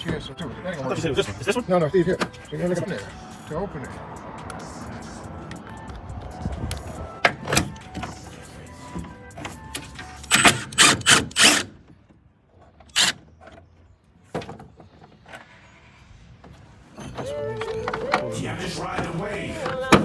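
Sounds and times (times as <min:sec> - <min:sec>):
hard parts knocking and clicking: 0:09.0 - 0:13.6.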